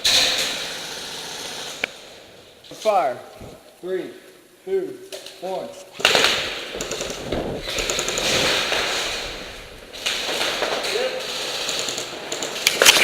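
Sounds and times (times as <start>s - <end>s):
airsoft guns firing bursts: 6.0s - 13.0s.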